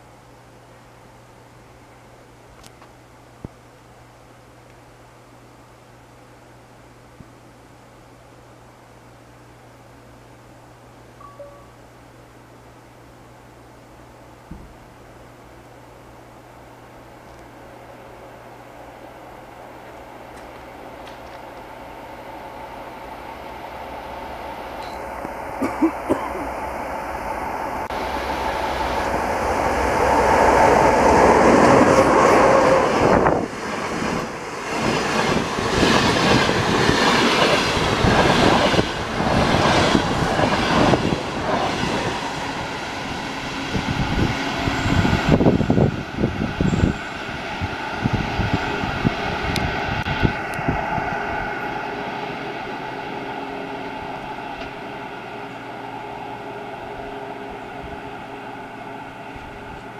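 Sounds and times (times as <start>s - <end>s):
train rushing past: 17.7s - 59.9s.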